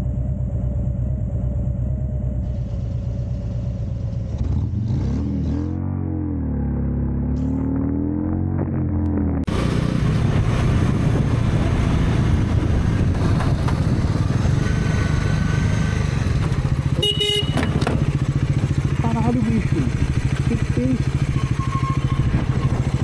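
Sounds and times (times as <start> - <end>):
road noise: 0.0 - 23.0
motorcycle engine running: 8.3 - 23.0
car horn honk: 16.9 - 18.2.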